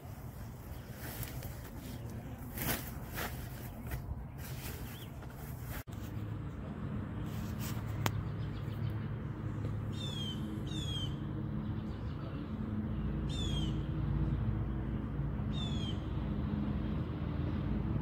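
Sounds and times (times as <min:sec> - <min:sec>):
bird chirping: 0:09.9 - 0:13.8.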